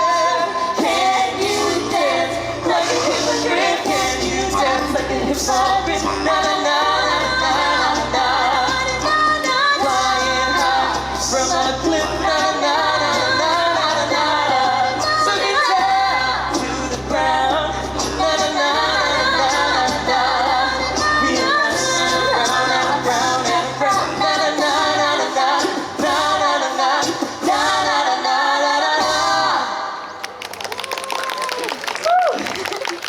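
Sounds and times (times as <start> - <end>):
vocal group singing in harmony: 0.0 - 30.2.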